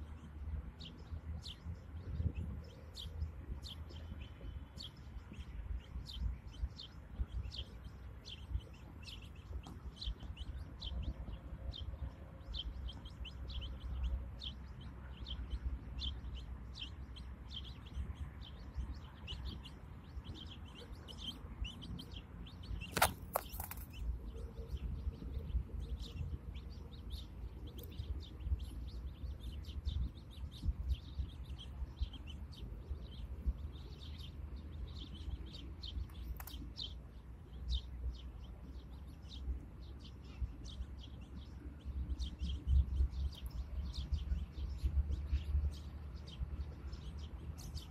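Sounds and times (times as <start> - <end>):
birds chirping: 0.0 - 47.9
brief loud crackle: 22.9 - 23.9.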